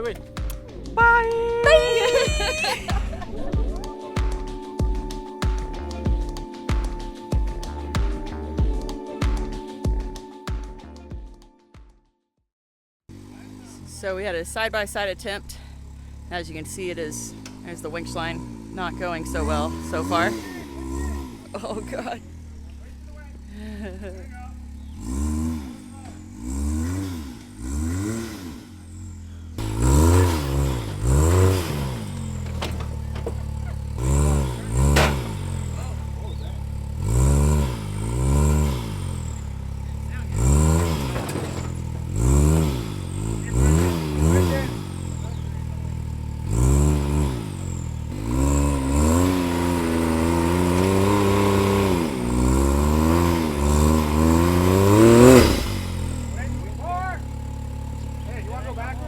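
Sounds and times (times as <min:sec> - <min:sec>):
engine revving: 0:01.6 - 0:04.4, 0:13.1 - 0:59.0
sharp knocks: 0:34.8 - 0:35.6.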